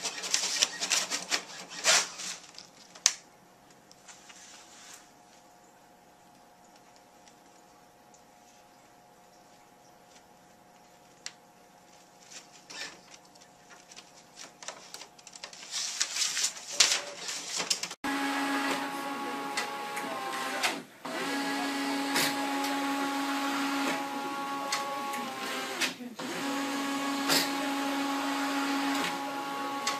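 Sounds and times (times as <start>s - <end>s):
paper rustling: 0.0s - 3.2s, 4.0s - 5.2s, 11.8s - 18.0s
printer mechanical whine: 18.1s - 29.9s
faint printer clicks: 19.4s - 20.8s.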